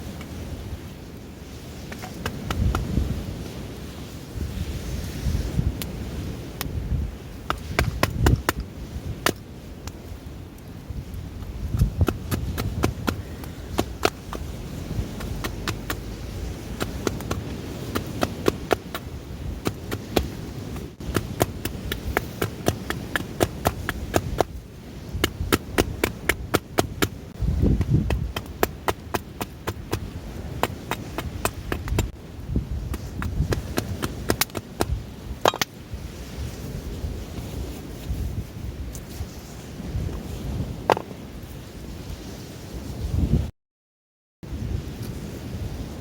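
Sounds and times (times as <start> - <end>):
wind rumble: 0.0 - 43.5, 44.4 - 46.0
knife whittling wood: 11.8 - 24.5.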